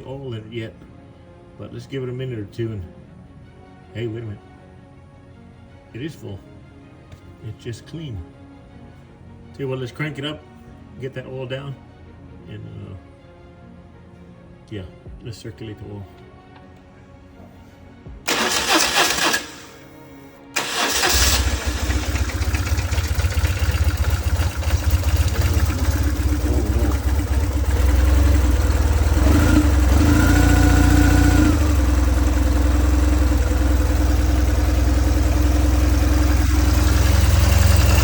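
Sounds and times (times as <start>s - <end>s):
motorcycle engine cranking: 18.3s - 19.9s, 20.6s - 38.0s
motorcycle engine idling: 20.7s - 38.0s.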